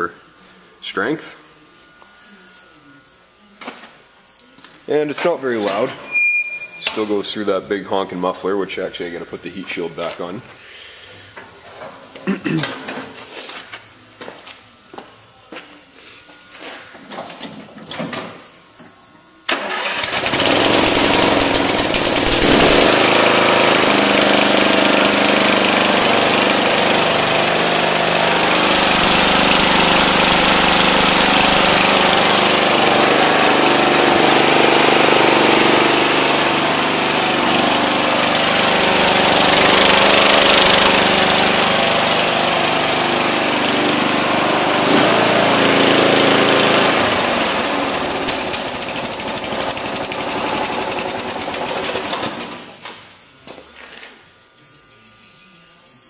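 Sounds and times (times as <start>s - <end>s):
small tractor engine running: 19.5s - 52.8s.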